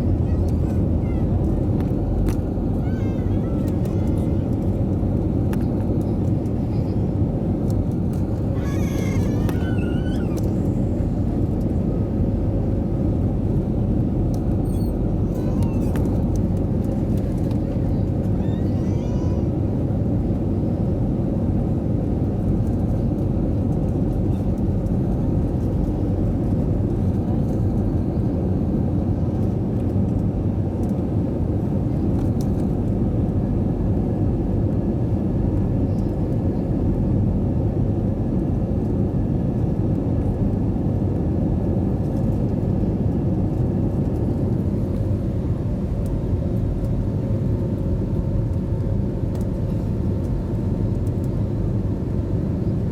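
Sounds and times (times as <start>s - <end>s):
jet engine cabin rumble: 0.0s - 52.9s.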